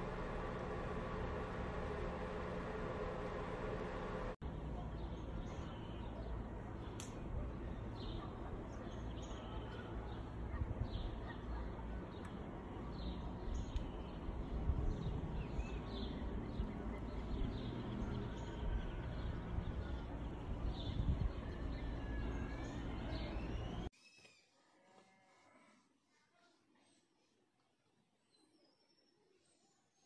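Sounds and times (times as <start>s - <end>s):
low background rumble: 0.0s - 23.9s
birds chirping: 4.4s - 24.4s.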